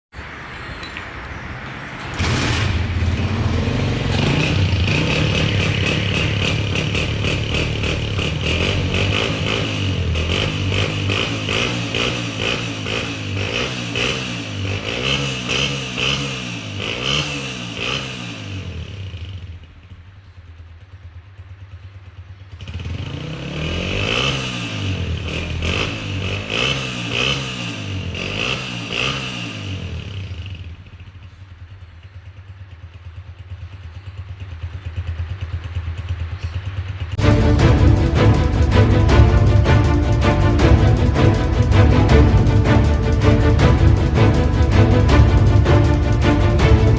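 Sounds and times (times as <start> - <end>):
motorcycle engine revving: 1.7 - 46.9
motorcycle engine idling: 2.1 - 46.9.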